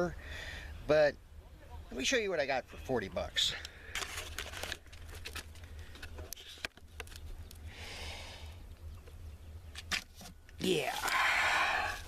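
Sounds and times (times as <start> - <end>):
rustle: 9.7 - 12.0.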